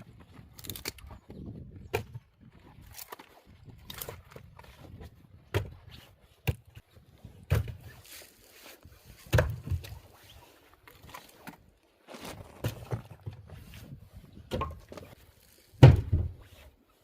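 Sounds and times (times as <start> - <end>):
axe splitting logs: 0.0 - 8.0, 9.1 - 10.2, 12.3 - 16.5.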